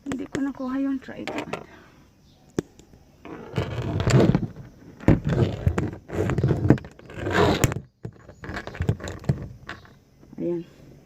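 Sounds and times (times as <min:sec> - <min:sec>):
phone rubbing against microphone: 0:03.2 - 0:10.0.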